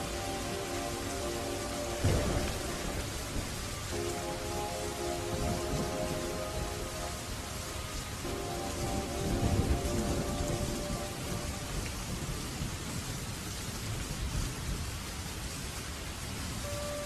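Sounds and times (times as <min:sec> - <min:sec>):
song: 0:00.0 - 0:12.2
low rumble of thunder: 0:00.0 - 0:15.0
steady rain: 0:00.0 - 0:17.0.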